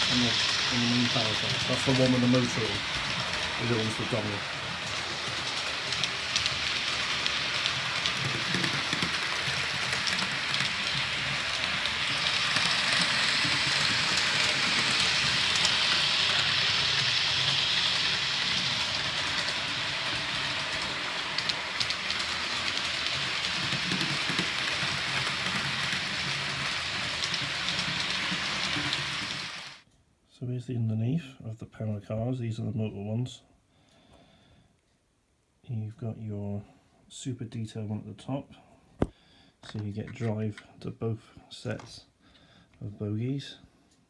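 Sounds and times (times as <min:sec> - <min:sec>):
model train motors whirring: 0:00.0 - 0:29.8
wheels rattling over rails: 0:00.0 - 0:29.8.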